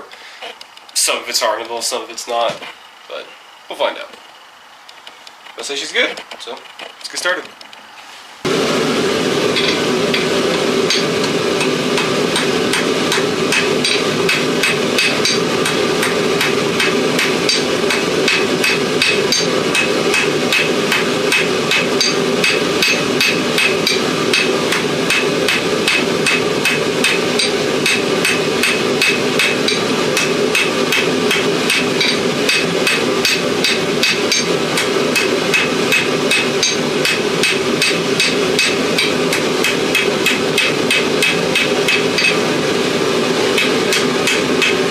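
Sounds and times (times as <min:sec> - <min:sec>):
constant drone: 0:08.4 - 0:44.9
hammer striking metal on anvil: 0:09.5 - 0:42.6, 0:43.5 - 0:44.9.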